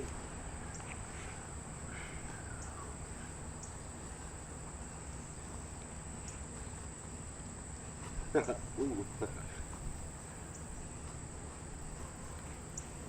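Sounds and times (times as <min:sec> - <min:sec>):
faint chirps: 0:00.6 - 0:03.9.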